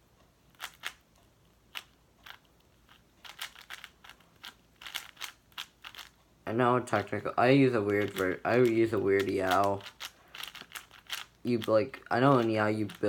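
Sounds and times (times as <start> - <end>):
speed cube clicking: 0.5 - 1.1, 1.7 - 6.2, 7.8 - 13.0.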